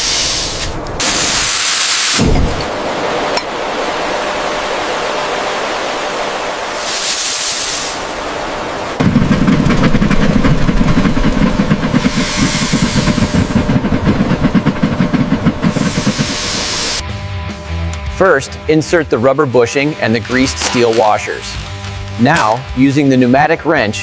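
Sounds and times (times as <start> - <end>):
short bursts of high hiss: 0.0 - 2.3, 6.8 - 8.1, 12.0 - 13.5, 15.7 - 17.0
steady hissing: 0.0 - 2.6, 6.4 - 9.0, 9.8 - 17.0
low mechanical rumble with rattle: 8.0 - 17.0.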